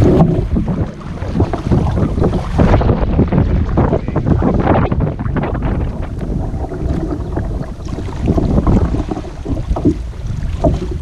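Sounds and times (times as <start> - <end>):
kayaks splashing on water: 0.0 - 11.0
wind buffeting microphone: 0.0 - 11.0.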